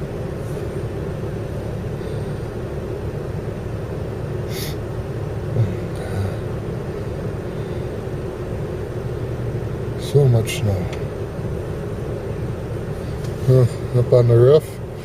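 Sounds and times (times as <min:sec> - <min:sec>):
vehicle engine rumble from cab: 0:00.0 - 0:15.0.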